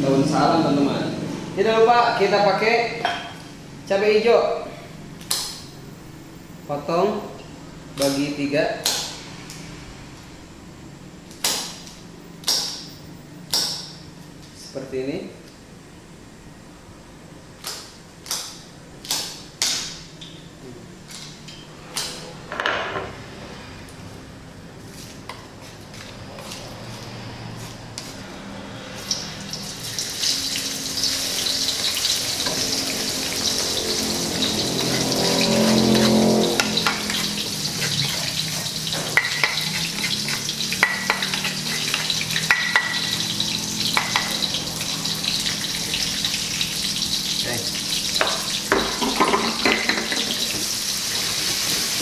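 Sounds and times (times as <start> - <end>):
spice paste sizzling in oil: 29.0 - 52.0.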